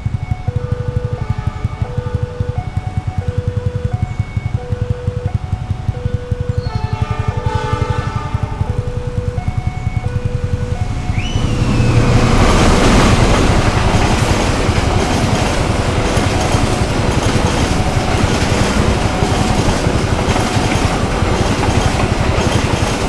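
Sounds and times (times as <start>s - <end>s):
train carriages rushing past: 0.0s - 23.0s
wheels clacking over rail joints: 0.0s - 23.0s
short falling whine: 6.1s - 20.0s.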